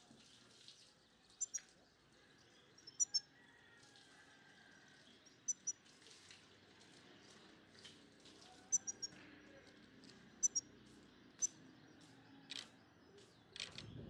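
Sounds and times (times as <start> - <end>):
small bird chirping: 1.3 - 1.8, 2.8 - 3.2, 5.4 - 5.8, 8.7 - 9.2, 10.4 - 10.7, 11.4 - 11.6.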